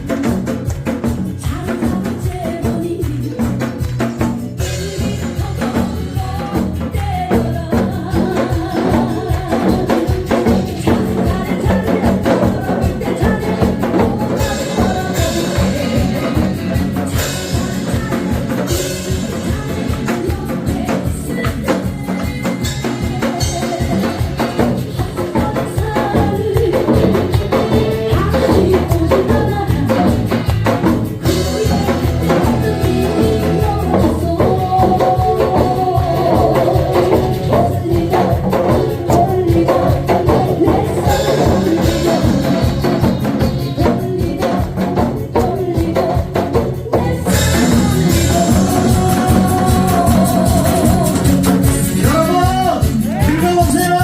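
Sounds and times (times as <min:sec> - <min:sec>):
person singing: 0:00.0 - 0:54.0
pop song backing track: 0:00.0 - 0:54.0.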